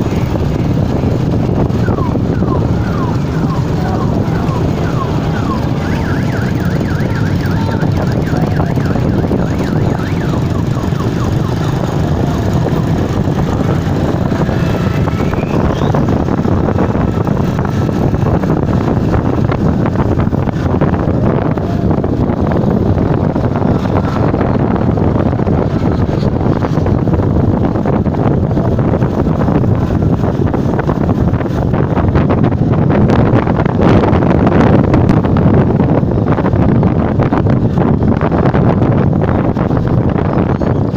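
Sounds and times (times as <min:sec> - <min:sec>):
motorcycle engines running: 0:00.0 - 0:40.9
rising siren-like whoops: 0:01.8 - 0:16.2.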